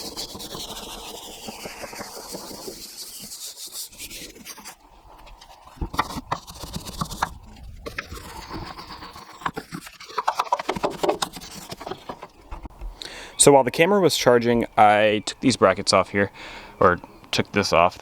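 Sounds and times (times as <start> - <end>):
brush scrubbing engine parts: 0.0 - 12.3.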